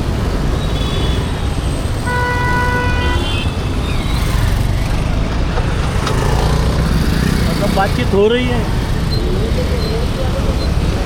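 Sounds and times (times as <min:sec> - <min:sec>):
road traffic: 0:00.0 - 0:11.0
vehicle horn honking: 0:02.0 - 0:03.6.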